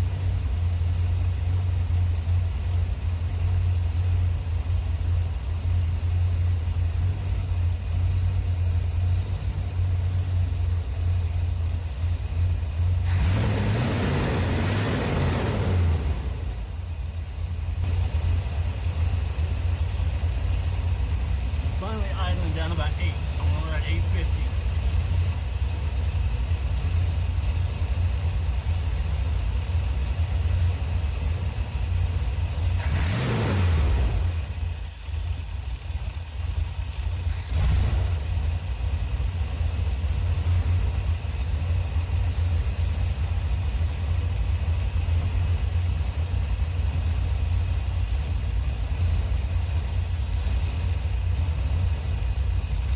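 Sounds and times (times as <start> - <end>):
car engine idling and revving: 0.0 - 52.9
rush of noise: 21.6 - 25.1.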